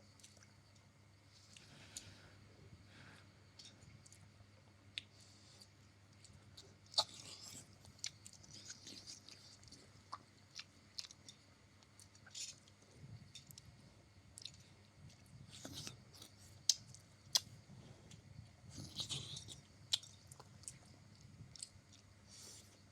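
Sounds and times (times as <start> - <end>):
person chewing noodles: 4.9 - 13.7, 14.4 - 22.9.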